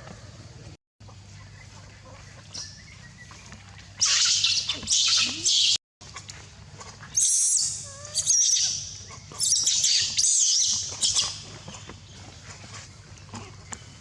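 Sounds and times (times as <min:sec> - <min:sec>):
young monkey squealing: 0:04.0 - 0:05.8, 0:07.2 - 0:11.4.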